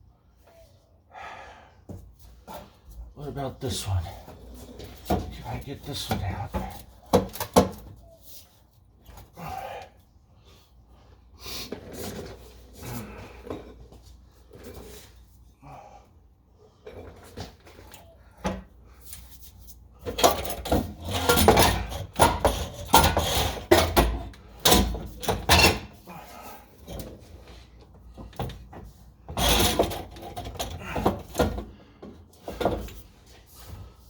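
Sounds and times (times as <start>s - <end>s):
metal exhaust pipe clanking and scraping: 20.0s - 26.0s, 29.2s - 33.0s.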